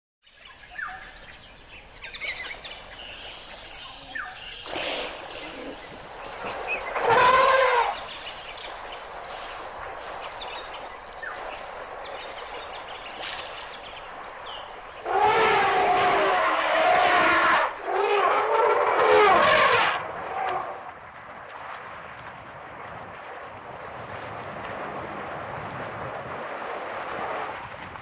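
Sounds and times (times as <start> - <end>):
birds chirping: 0.2 - 18.2
outdoor background noise: 0.2 - 28.0
rising and falling loud call: 6.8 - 8.1, 15.0 - 20.0.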